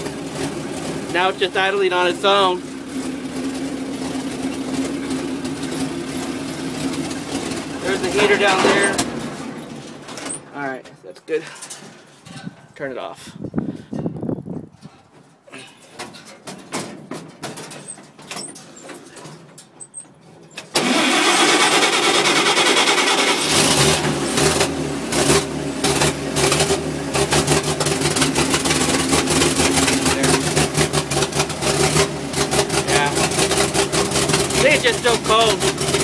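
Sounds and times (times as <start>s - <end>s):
truck engine running: 0.0s - 10.9s, 18.6s - 36.0s
starter cranking engine: 20.6s - 36.0s.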